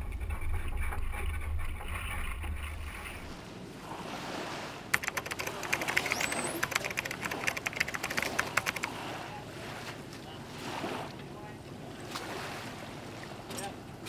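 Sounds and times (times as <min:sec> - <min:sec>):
rapid sharp clicks: 0:05.0 - 0:09.0.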